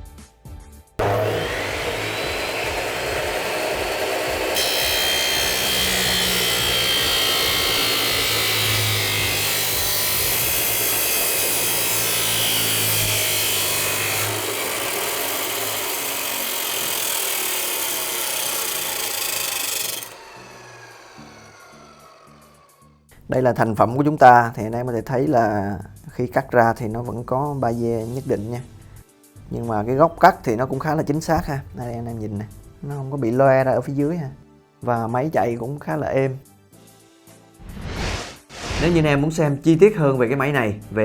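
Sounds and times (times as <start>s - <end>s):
saw wheel grinding steel: 1.0s - 22.9s
chop saw motor running: 1.0s - 23.0s.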